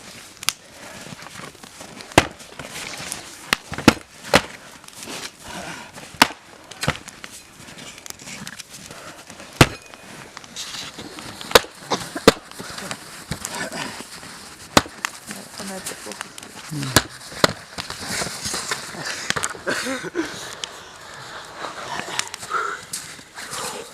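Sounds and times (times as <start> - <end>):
weapons striking wooden shields: 2.1 - 2.4, 3.5 - 4.5, 6.2 - 7.0, 9.6 - 10.0, 11.5 - 12.5, 14.7 - 15.0, 16.9 - 17.6.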